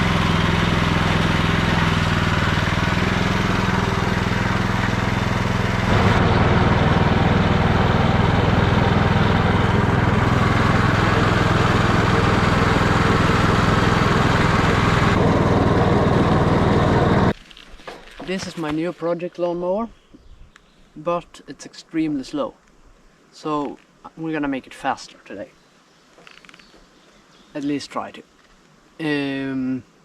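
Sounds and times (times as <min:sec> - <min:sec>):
small petrol engine running: 0:00.0 - 0:17.4.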